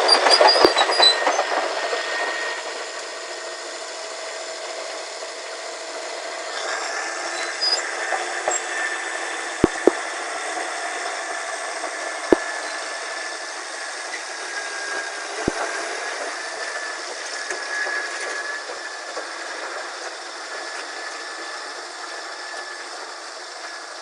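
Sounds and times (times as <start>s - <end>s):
bulldozer running: 0.0s - 24.0s
sharp knocks: 9.6s - 10.0s.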